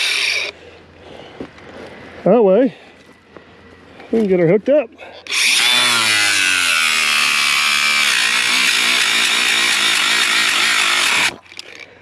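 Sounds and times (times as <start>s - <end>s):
reciprocating saw cutting pipe: 0.0s - 0.5s, 5.3s - 11.7s.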